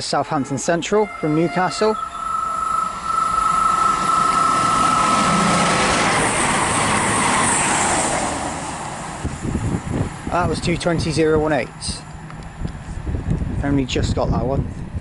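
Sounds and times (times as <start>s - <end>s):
train passing at speed: 0.4s - 13.6s
steady high whine: 0.6s - 10.0s.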